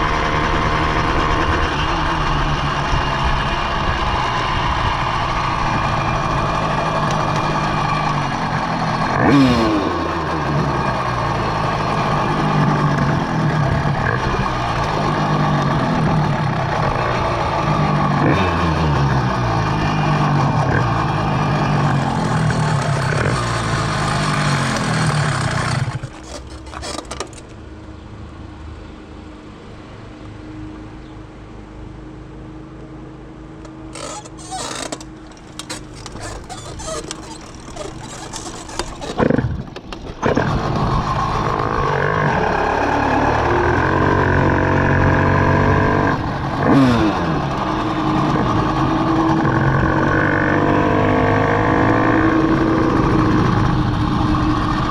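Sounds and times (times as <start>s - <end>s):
two-stroke engine running: 0.0s - 27.5s, 33.6s - 54.9s.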